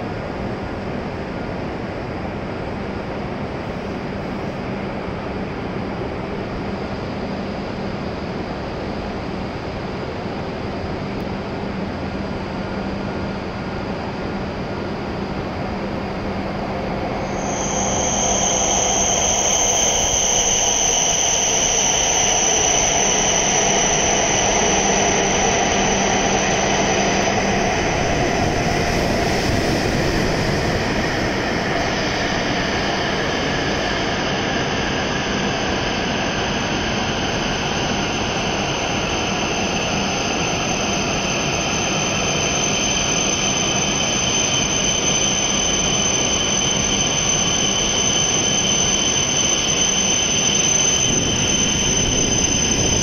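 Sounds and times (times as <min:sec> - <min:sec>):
train rolling past: 0:11.7 - 0:53.0
high-pitched squeal: 0:16.7 - 0:53.0.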